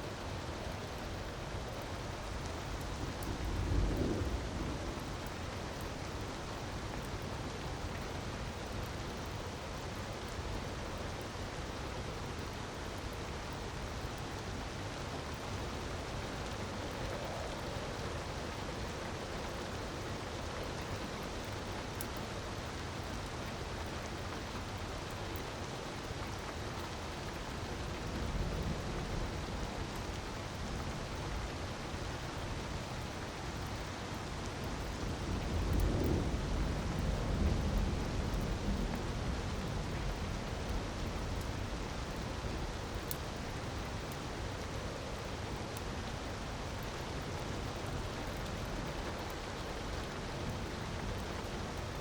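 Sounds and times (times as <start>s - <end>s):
faint crackles: 15.2s - 23.6s.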